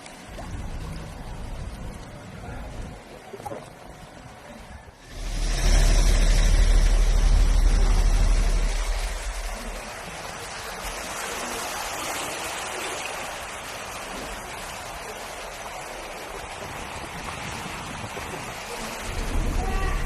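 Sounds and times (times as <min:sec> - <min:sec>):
floodwater rushing: 0:00.0 - 0:20.0
vehicle engine rumble: 0:00.2 - 0:10.9, 0:18.5 - 0:20.0.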